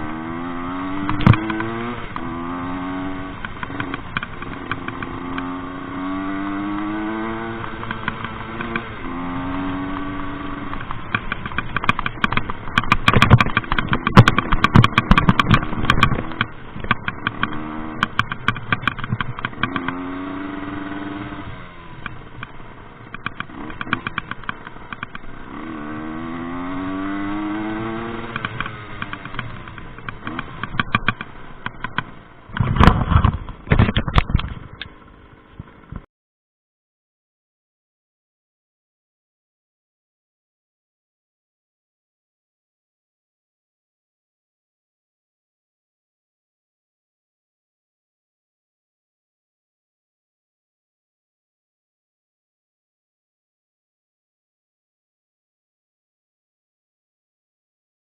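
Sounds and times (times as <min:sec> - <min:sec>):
moped engine revving: 0:00.0 - 0:36.0.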